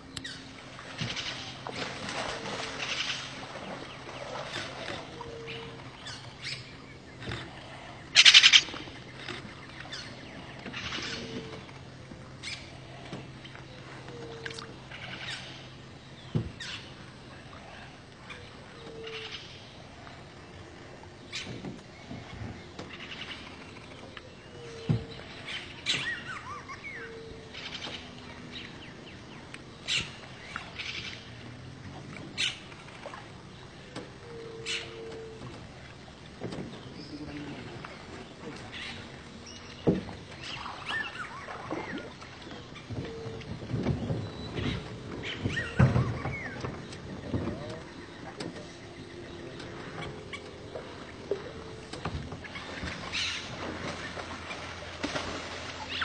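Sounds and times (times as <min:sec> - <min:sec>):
birds calling: 0:00.0 - 0:56.0
bird trilling: 0:05.0 - 0:11.7, 0:34.2 - 0:35.4.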